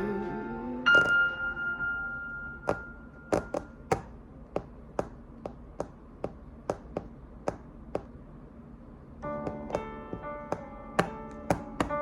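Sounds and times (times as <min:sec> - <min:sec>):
held piano note: 0:00.0 - 0:03.9, 0:09.2 - 0:12.0
sharp taps: 0:02.6 - 0:08.2, 0:09.4 - 0:12.0.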